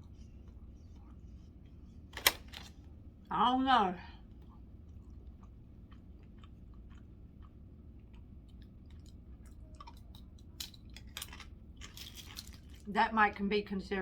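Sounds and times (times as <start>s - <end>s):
person chewing food: 0.0s - 2.1s, 4.2s - 12.9s.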